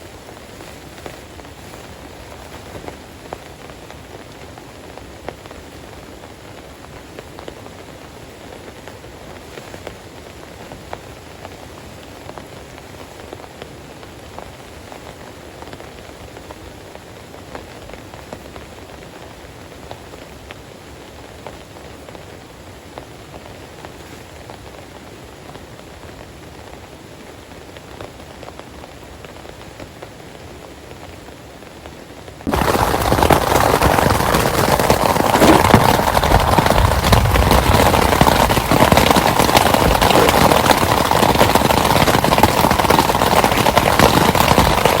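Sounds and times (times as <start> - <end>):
heavy downpour: 0.0 - 45.0
rain falling: 0.0 - 45.0
raindrops ticking: 32.5 - 45.0.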